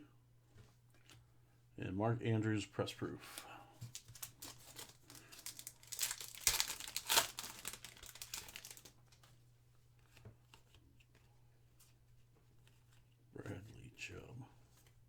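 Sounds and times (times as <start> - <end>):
plastic wrapper tearing and crinkling: 3.8 - 9.3
light clicks of cards handled: 8.8 - 13.2.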